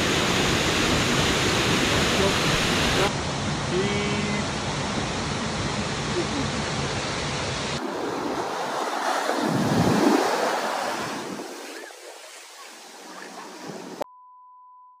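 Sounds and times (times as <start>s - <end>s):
rushing water: 0.0s - 14.0s
wind on microphone: 4.8s - 12.0s.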